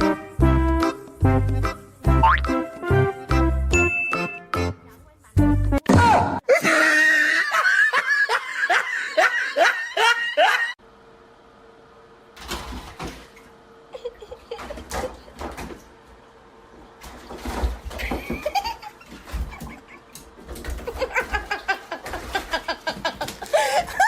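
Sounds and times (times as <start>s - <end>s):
people laughing: 6.5s - 10.8s, 20.8s - 24.0s.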